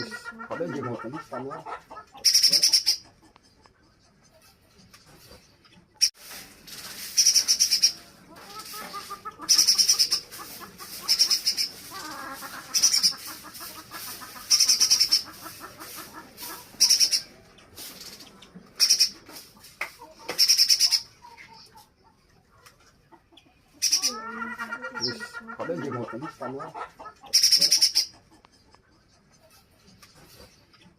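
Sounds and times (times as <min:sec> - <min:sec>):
bird rattling calls: 0:02.1 - 0:03.1, 0:06.0 - 0:21.2, 0:23.8 - 0:24.2, 0:27.2 - 0:28.2
bird twittering: 0:07.1 - 0:13.4, 0:14.3 - 0:17.4.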